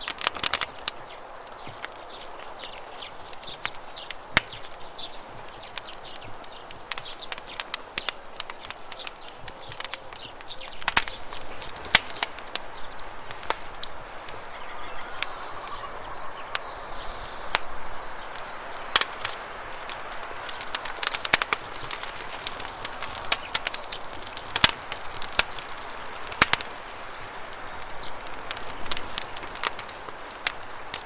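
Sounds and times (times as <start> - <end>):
campfire crackling and popping: 0.0 - 31.0
faint high trill: 13.7 - 17.6.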